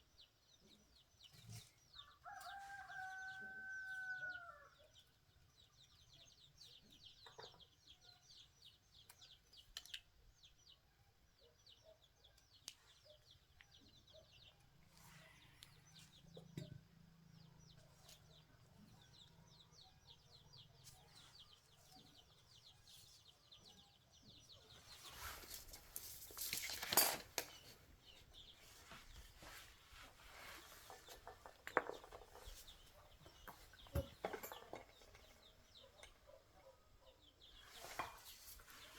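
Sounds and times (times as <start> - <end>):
rustling clatter: 24.9 - 27.8.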